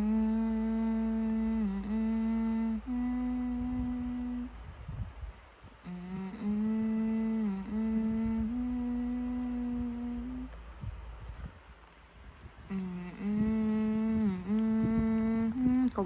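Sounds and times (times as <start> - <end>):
person humming: 0.0 - 4.8, 5.8 - 11.0, 12.6 - 16.0.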